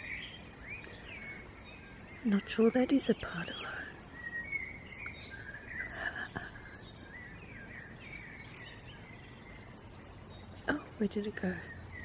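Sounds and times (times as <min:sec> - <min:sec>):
small birds chirping: 0:00.0 - 0:12.0
gliding whistled bird notes: 0:03.3 - 0:12.0.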